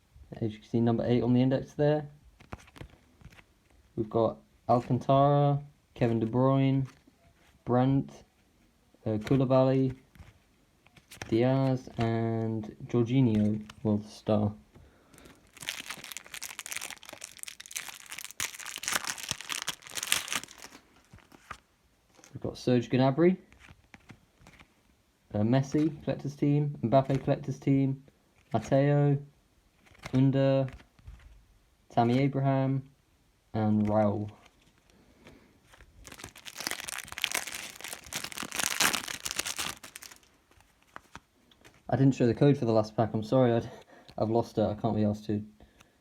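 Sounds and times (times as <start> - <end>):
foil wrapper tearing and crinkling: 15.2 - 21.5, 35.8 - 41.2.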